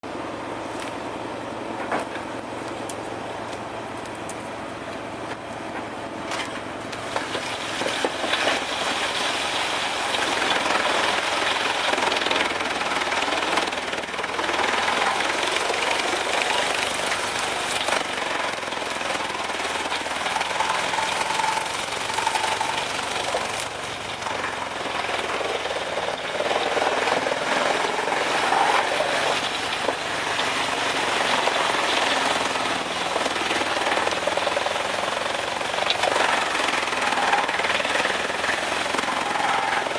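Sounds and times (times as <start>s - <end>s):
wood chipper chipping wood: 0.0s - 39.9s.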